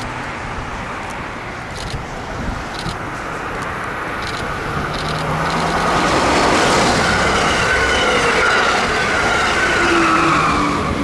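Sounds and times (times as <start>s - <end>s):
train wheels rushing on rail: 0.0s - 11.0s
whining train tones: 5.4s - 11.0s.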